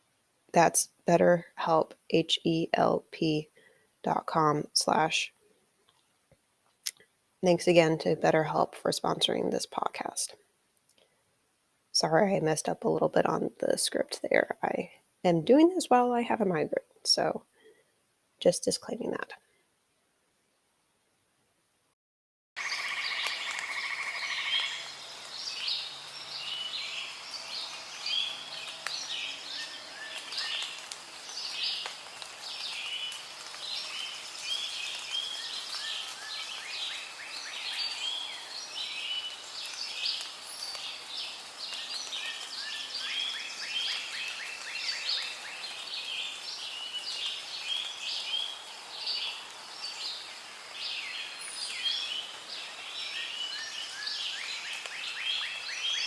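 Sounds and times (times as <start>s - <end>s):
faint background hiss: 0.0s - 22.0s, 22.6s - 56.0s
chorus of bird calls: 22.6s - 56.0s.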